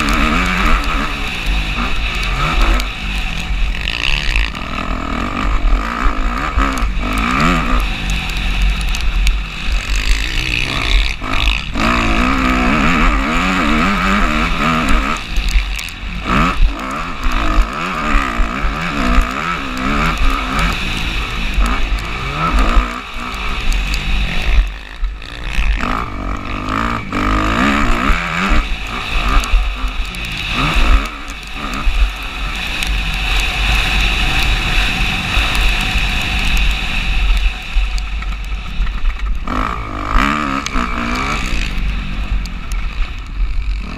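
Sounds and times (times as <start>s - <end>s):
motocross bike engine revving: 0.0s - 43.9s.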